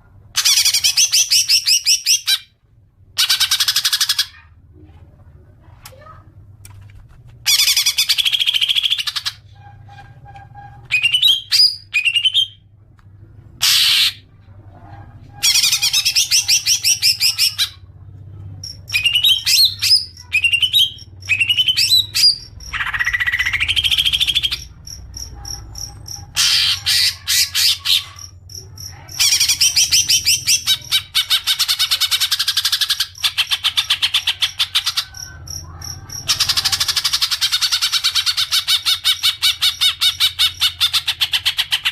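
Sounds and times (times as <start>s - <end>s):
faint low hum: 0.0s - 41.9s
bird song whistles and trills: 10.9s - 12.6s, 18.8s - 24.7s.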